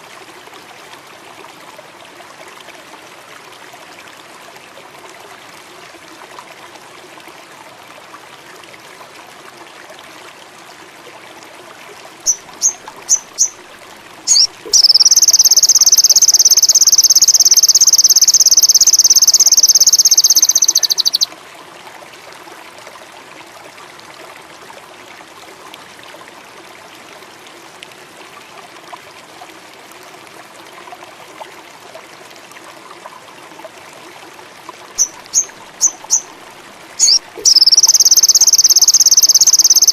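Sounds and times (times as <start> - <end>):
running water: 0.0 - 39.9
bird chirps and trill: 12.3 - 13.6, 14.3 - 21.3, 35.0 - 36.3, 37.0 - 39.9.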